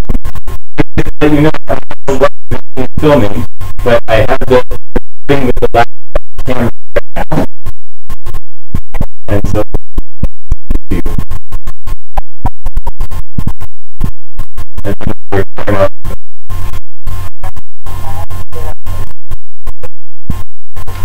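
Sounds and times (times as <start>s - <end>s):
garbled distorted call voices: 0.7s - 7.6s, 9.2s - 9.8s, 10.8s - 11.4s, 14.8s - 16.2s.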